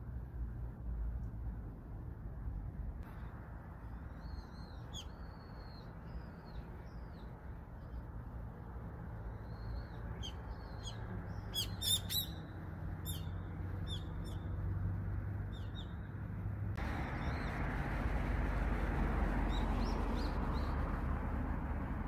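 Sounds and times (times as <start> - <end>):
bird chirping: 4.0 - 8.1, 9.2 - 14.6, 15.5 - 16.1.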